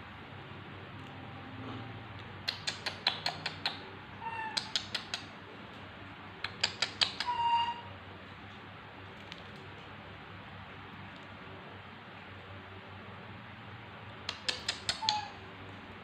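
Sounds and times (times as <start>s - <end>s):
baby monkey squeaky chirps: 6.6s - 7.9s, 14.5s - 15.4s.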